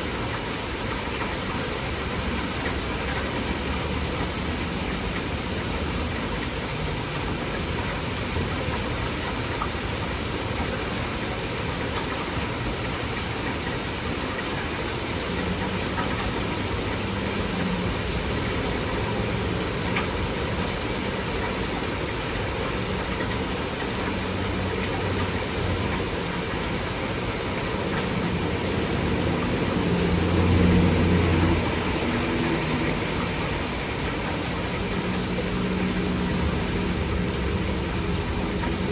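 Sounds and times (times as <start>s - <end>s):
heavy rain: 0.0s - 38.9s
engine humming: 14.7s - 38.9s.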